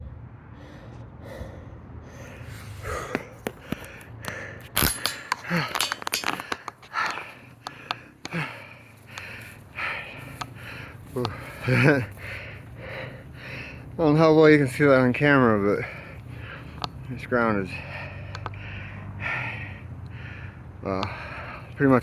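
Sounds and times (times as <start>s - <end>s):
person breathing hard: 0.2s - 22.0s
twigs snapping: 3.2s - 8.5s.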